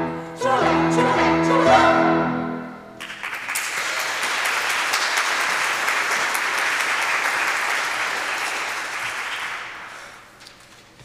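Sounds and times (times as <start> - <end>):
audience applauding: 3.0 - 10.3.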